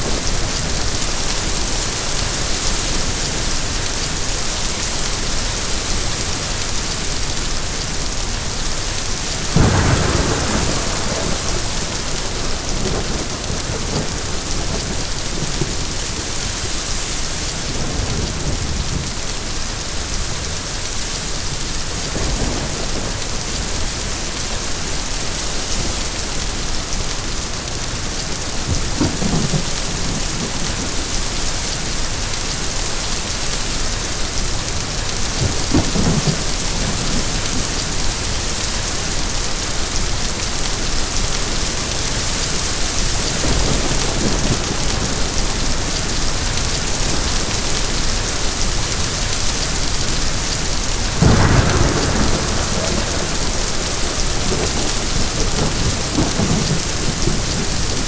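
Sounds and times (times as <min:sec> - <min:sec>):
steady rain: 0:00.0 - 0:58.0
thunder rumbling: 0:09.4 - 0:19.3, 0:42.1 - 0:58.0.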